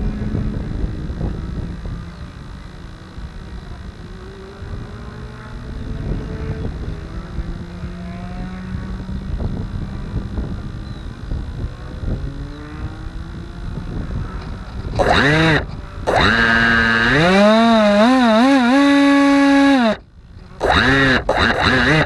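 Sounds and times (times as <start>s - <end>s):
model plane motor whine: 0.0s - 22.0s
wind buffeting microphone: 4.6s - 19.8s.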